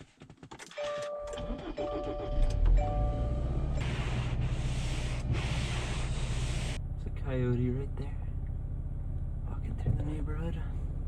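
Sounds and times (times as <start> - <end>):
car warning chime: 0.8 - 3.8
car engine starting and idling: 0.9 - 11.0.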